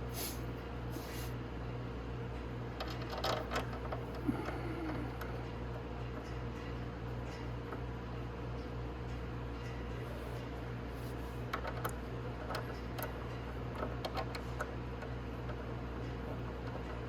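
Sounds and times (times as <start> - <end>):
steady low hum: 3.5 - 17.0.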